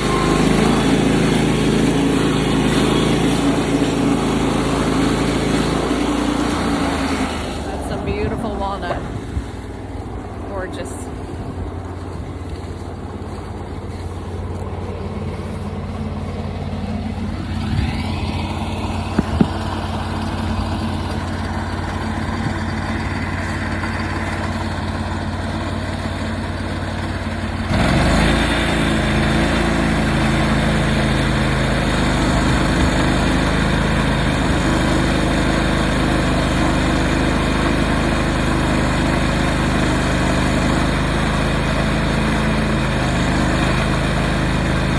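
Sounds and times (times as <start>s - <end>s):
saw blade cutting log: 0.0s - 9.0s, 17.4s - 21.3s
sawmill engine revving: 0.0s - 44.9s
sharp knocks: 19.1s - 19.8s.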